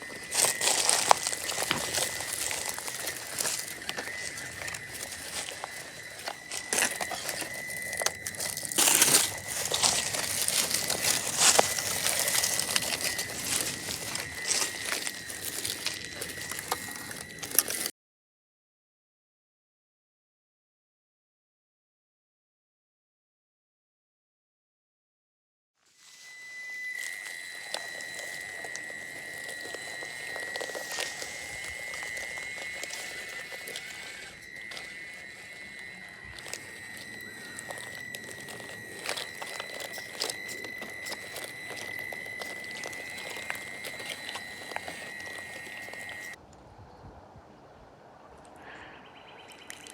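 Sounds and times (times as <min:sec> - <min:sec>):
steady high whine: 0:00.0 - 0:17.9, 0:26.0 - 0:46.4
tyres crunching over dirt: 0:00.0 - 0:17.9, 0:26.0 - 0:46.4.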